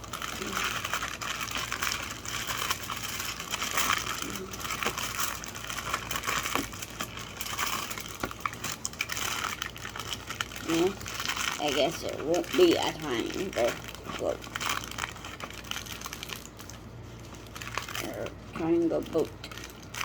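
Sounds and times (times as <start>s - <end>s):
aluminium foil crinkling: 0.0s - 20.0s.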